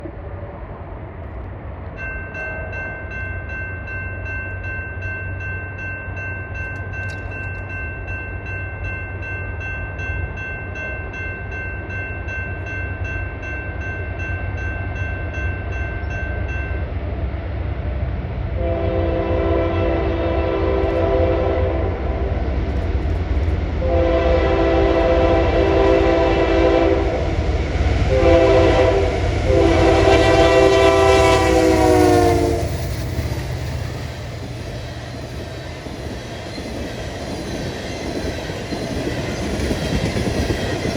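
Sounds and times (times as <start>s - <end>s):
freight train rumble: 0.0s - 40.9s
locomotive air horn: 18.6s - 22.3s, 23.8s - 27.3s, 28.1s - 32.8s.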